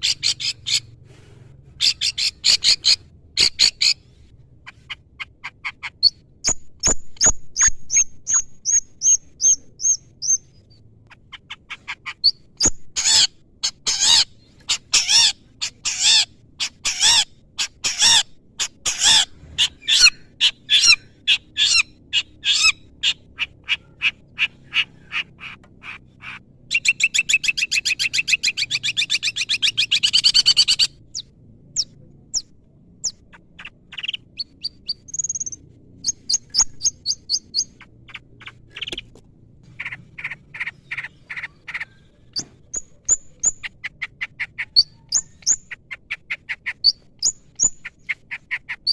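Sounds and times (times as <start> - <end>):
shrike singing varied song: 0.0 - 1.0, 1.7 - 39.1, 39.7 - 48.9
fast rattling bird trill: 5.0 - 10.5.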